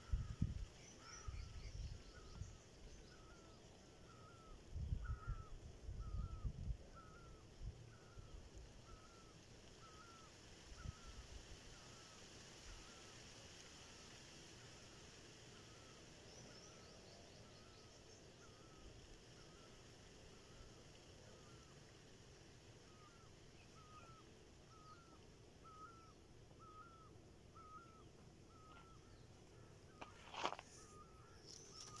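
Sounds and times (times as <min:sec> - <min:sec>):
faint bird chirping: 0:00.0 - 0:32.0
low outdoor hiss: 0:00.0 - 0:32.0.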